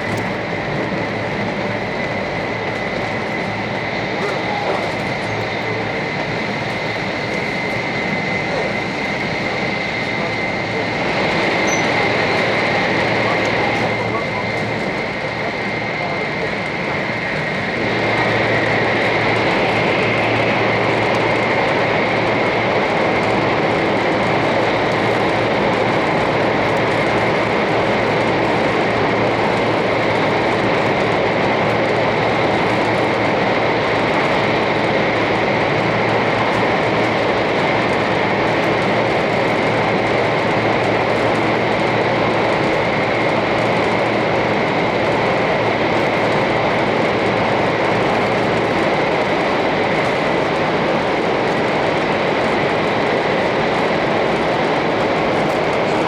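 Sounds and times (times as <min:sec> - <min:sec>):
train cabin rushing noise: 0:00.0 - 0:22.4.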